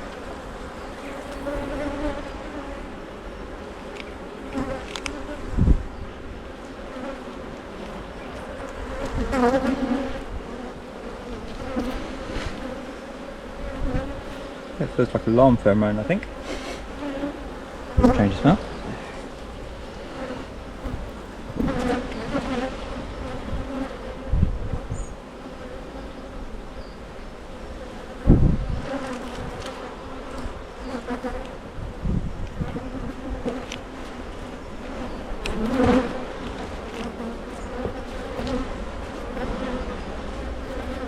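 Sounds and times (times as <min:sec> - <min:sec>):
honeybees buzzing: 0:00.0 - 0:41.0
low thumps: 0:16.3 - 0:22.6.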